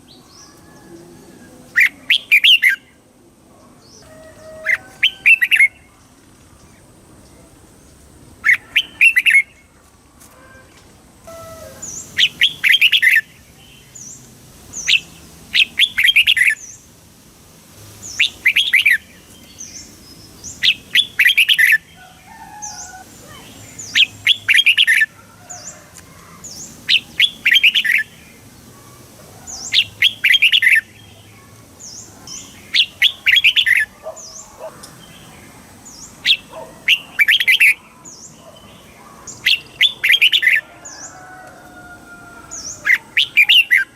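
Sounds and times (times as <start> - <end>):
bird singing bubbling phrases: 1.7 - 3.0, 8.4 - 9.7, 11.8 - 16.8, 18.0 - 22.0, 22.7 - 25.1, 29.6 - 40.6, 42.6 - 43.9.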